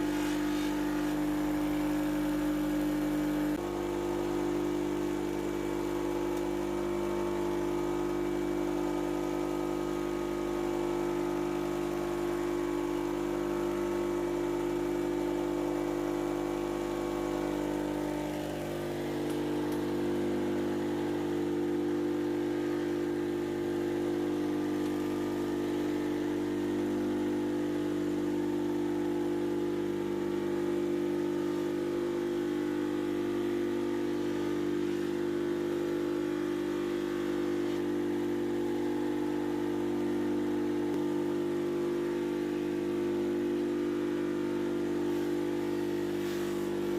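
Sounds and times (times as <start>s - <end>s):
power tool motor running: 15.6s - 46.9s.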